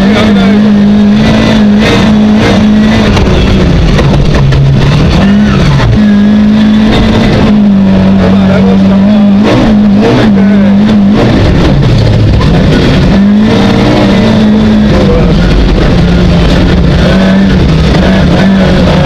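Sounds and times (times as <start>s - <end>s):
car engine at high revs: 0.0s - 19.0s.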